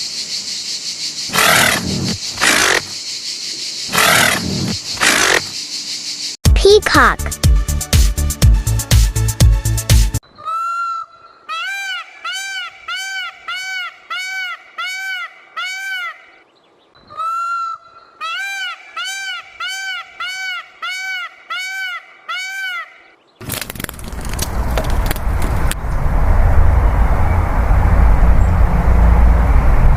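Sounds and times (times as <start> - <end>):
peacock honking calls: 10.4 - 16.4, 17.1 - 23.1
loud noisy rumble: 25.8 - 29.9.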